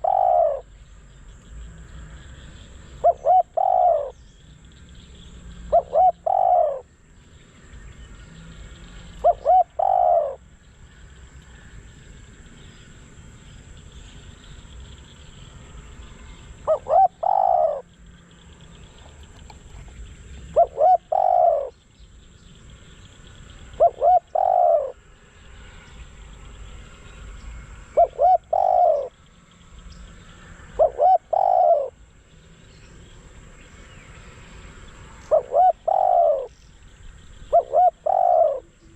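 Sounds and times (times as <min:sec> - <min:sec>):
dove cooing: 0:00.0 - 0:00.7, 0:02.8 - 0:04.3, 0:05.6 - 0:06.9, 0:08.9 - 0:10.5, 0:16.6 - 0:18.0, 0:18.9 - 0:21.8, 0:23.7 - 0:25.0, 0:27.9 - 0:29.2, 0:30.7 - 0:32.0, 0:35.2 - 0:36.6, 0:37.4 - 0:38.9.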